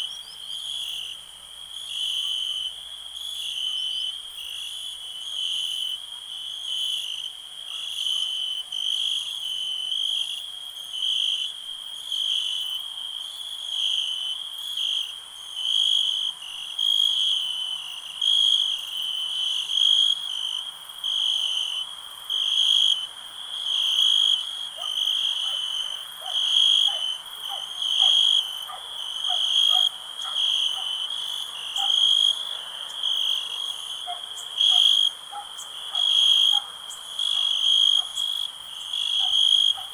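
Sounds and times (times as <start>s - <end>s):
crickets trilling: 13.6s - 39.9s.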